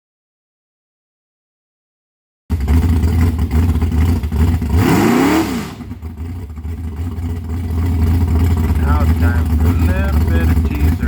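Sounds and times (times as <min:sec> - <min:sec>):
engine rumbling and revving: 0:02.5 - 0:11.0.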